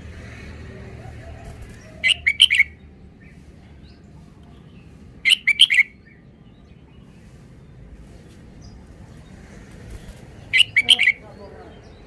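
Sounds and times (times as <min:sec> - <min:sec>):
bird singing short phrases: 0:05.2 - 0:06.2, 0:10.5 - 0:12.0.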